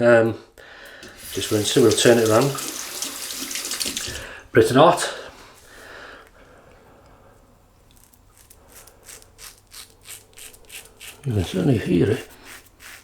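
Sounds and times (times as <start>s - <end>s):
razor scraping stubble: 7.4s - 13.0s.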